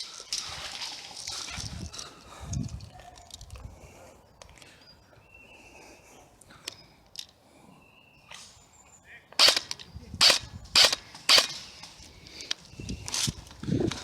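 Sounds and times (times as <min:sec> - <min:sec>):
airsoft gun shots: 0:09.4 - 0:11.7.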